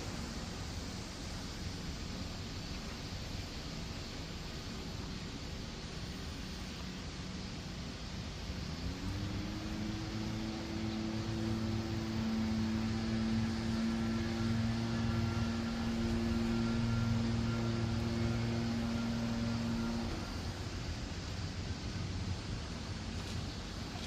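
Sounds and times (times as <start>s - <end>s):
background hiss: 0.0s - 24.0s
machine drone with low tones: 0.0s - 24.0s.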